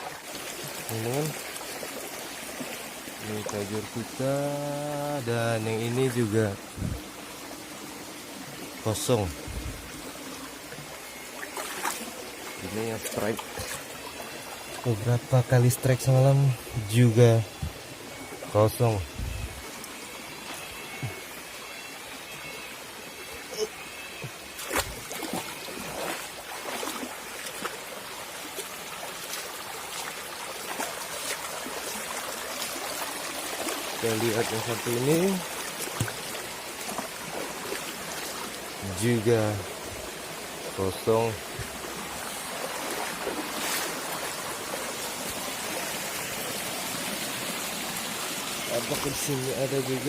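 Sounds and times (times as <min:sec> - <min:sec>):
water splashes and drips: 0:00.0 - 0:18.8, 0:24.2 - 0:50.0
river water flowing: 0:00.0 - 0:50.0
water splash: 0:11.4 - 0:12.1, 0:24.5 - 0:27.8, 0:35.6 - 0:38.5, 0:42.6 - 0:45.8.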